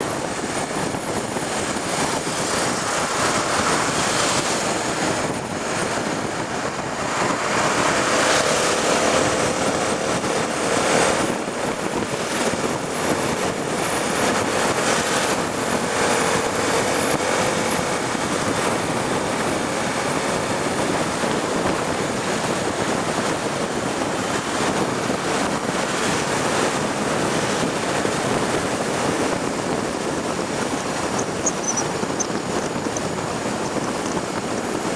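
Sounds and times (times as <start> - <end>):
wind and road noise: 0.0 - 34.9
motorcycle engine running: 28.2 - 34.9.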